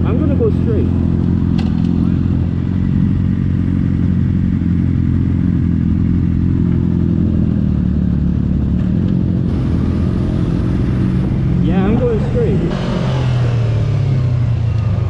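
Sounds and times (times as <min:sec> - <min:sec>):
motorcycle engine droning: 0:00.0 - 0:15.0.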